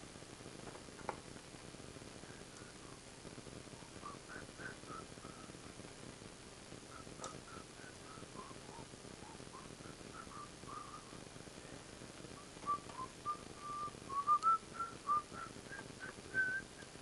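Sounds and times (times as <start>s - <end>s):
person whistling a tune: 12.6s - 16.9s.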